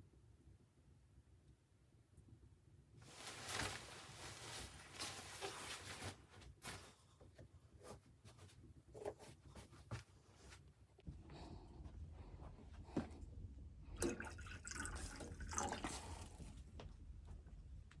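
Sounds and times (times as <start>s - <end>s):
rustling and scraping of handling: 3.0s - 13.4s.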